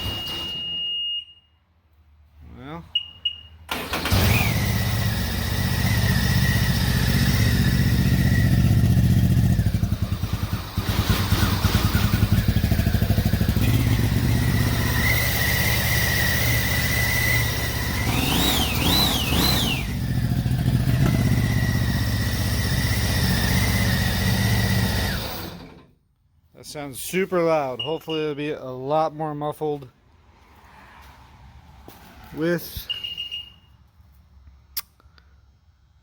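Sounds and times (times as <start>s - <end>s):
loud boat engine revving: 4.1s - 25.6s.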